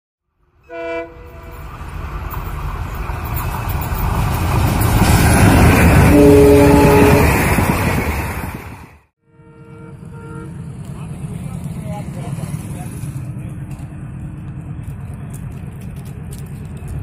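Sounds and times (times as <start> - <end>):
train engine and wheels rumbling: 0.3 - 17.0
train horn blast: 0.6 - 1.6, 6.0 - 7.5, 9.2 - 10.8.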